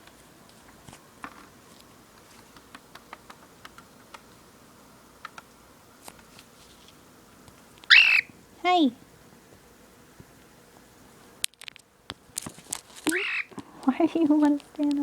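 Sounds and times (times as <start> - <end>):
bird beak and feet tapping: 2.2 - 4.3, 5.2 - 6.5, 11.5 - 15.0.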